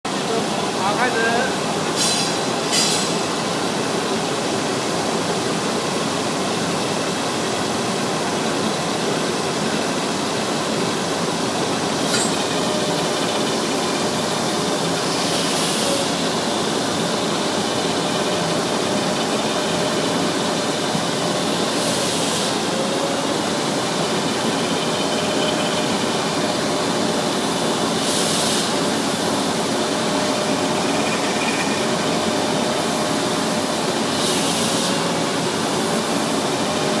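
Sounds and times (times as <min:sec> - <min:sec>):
sanding machine running: 0:16.0 - 0:37.0.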